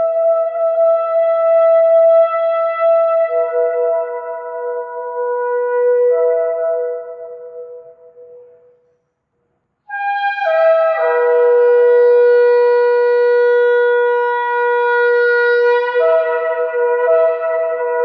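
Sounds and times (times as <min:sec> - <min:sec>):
shofar blowing: 0:09.9 - 0:18.0.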